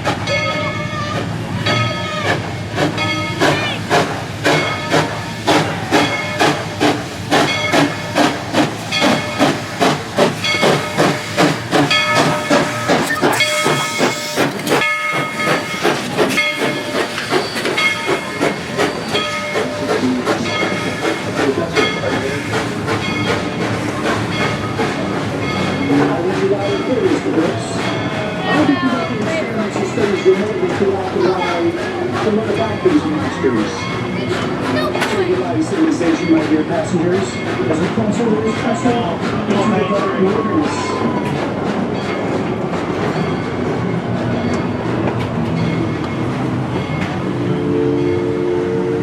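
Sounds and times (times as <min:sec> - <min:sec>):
steam locomotive chuffing: 0:00.0 - 0:49.0
hissing steam: 0:01.2 - 0:28.3.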